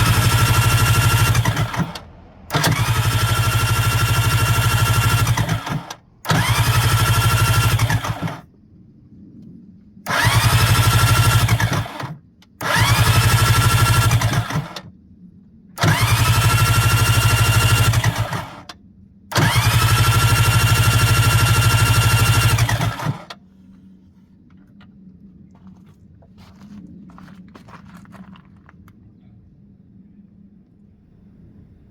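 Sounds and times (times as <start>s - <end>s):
engine electric starter whining: 0.0s - 8.5s, 10.1s - 14.9s, 15.8s - 23.4s.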